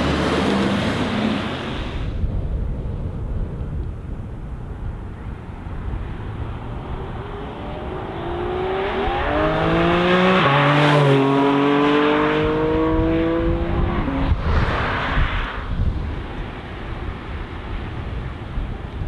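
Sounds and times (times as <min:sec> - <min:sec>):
sports car engine accelerating: 0:06.6 - 0:15.6.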